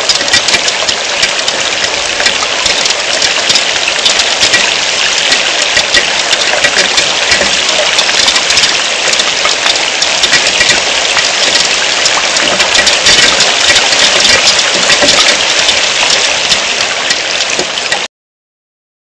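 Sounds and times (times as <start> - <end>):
heavy rain falling: 0.0 - 18.1.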